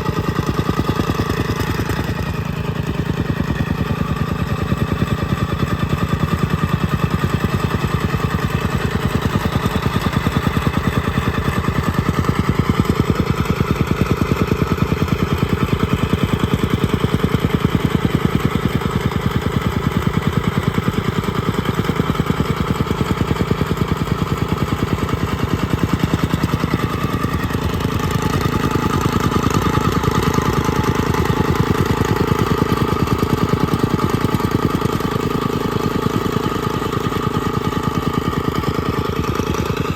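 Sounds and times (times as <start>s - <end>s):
compactor engine pulsing: 0.0s - 39.9s.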